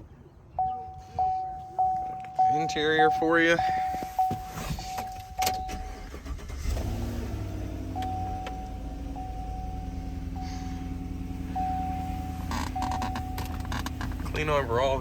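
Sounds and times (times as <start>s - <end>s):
warning chime tone: 0.6s - 5.9s, 7.9s - 13.6s
truck engine starting and idling: 0.6s - 15.0s.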